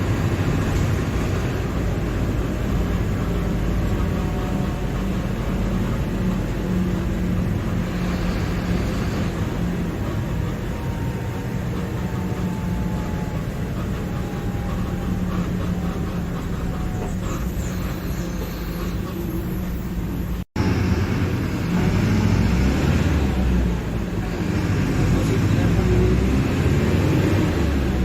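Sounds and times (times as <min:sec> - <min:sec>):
diesel bus engine running: 0:00.0 - 0:28.0.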